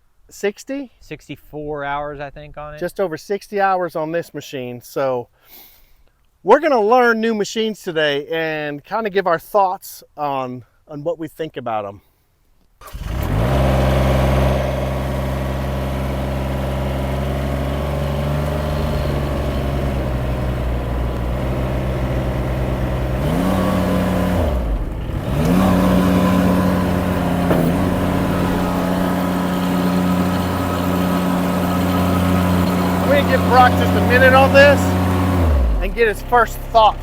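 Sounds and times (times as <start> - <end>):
diesel engine running: 12.9 - 37.0.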